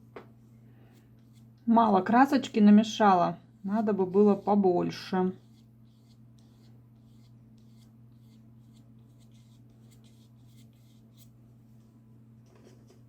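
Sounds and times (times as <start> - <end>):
steady low hum: 0.0 - 13.0
paintbrush scratching on paper: 1.2 - 1.5, 3.6 - 11.3.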